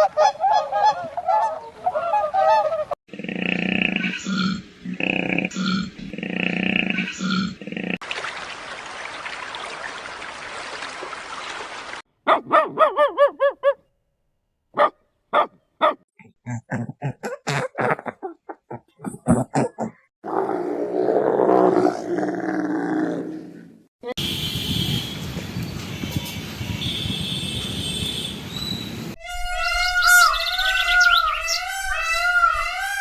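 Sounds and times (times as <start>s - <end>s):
animal sounds: 0.0s - 8.0s, 29.2s - 33.0s
dog barking and yelping: 12.2s - 13.8s, 14.8s - 16.0s.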